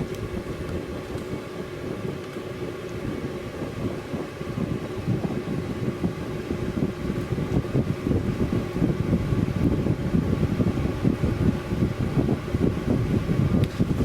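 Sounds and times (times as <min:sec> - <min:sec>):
fire rumbling in stove: 0:00.0 - 0:14.0.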